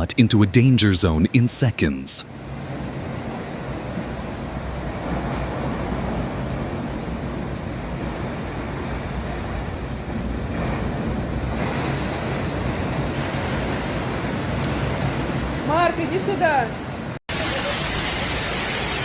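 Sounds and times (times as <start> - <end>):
ocean surf crashing: 0.0 - 19.0.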